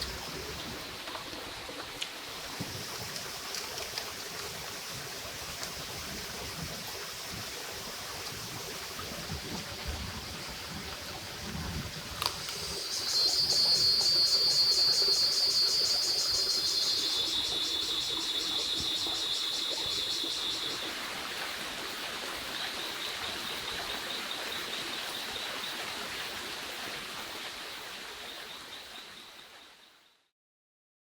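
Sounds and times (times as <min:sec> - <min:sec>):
insects buzzing: 0:12.2 - 0:25.8
steady background hiss: 0:12.2 - 0:26.5.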